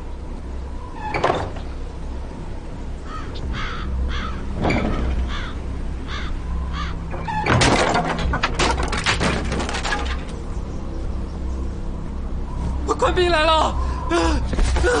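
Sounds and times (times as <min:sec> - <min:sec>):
bird calling: 0:02.9 - 0:07.5.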